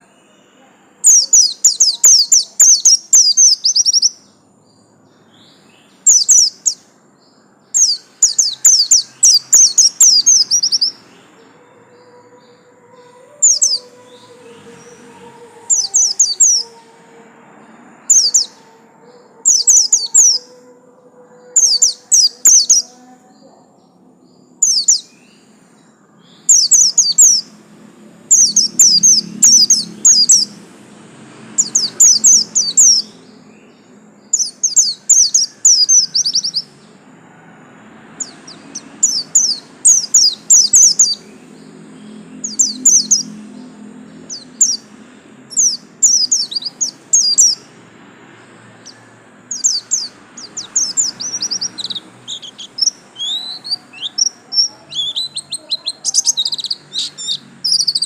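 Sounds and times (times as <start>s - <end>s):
bird twittering song: 0.0s - 27.6s, 28.3s - 30.8s, 31.4s - 37.0s, 38.2s - 58.0s.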